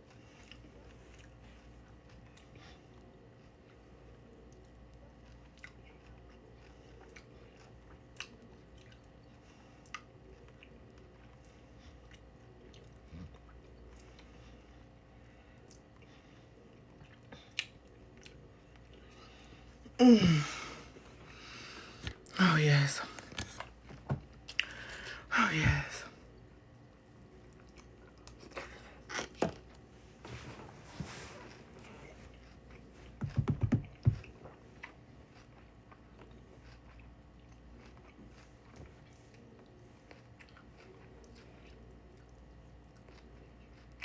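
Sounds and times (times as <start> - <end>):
chewing crunchy cereal: 0.0 - 19.9, 27.0 - 29.9, 34.2 - 44.0
person humming mmm: 20.0 - 20.9.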